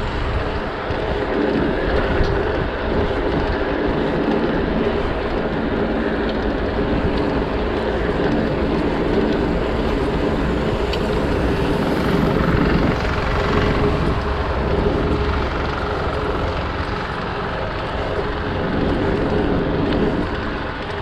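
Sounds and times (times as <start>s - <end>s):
bike tyres rolling: 0.0s - 21.0s
wind on microphone: 0.0s - 21.0s.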